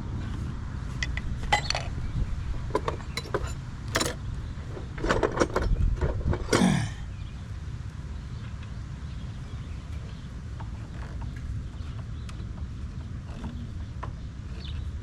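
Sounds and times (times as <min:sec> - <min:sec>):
metal tools clinking: 0:01.1 - 0:01.9, 0:02.8 - 0:04.2.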